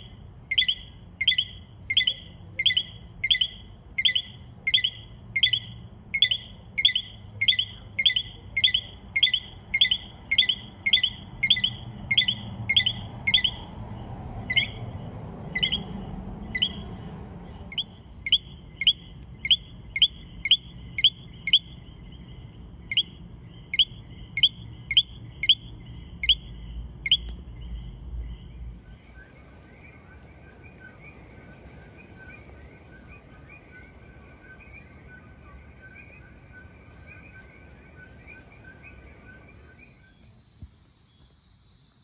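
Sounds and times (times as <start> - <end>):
frog's sharp high chirps: 0.0 - 13.8, 14.4 - 17.0, 17.7 - 21.9, 22.9 - 27.4
chorus of frogs chirping: 0.0 - 40.2.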